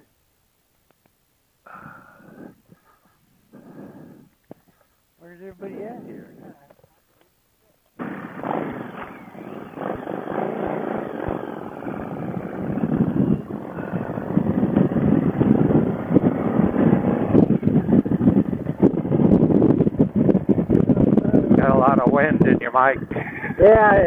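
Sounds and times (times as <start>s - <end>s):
wind buffeting microphone: 8.0s - 24.0s.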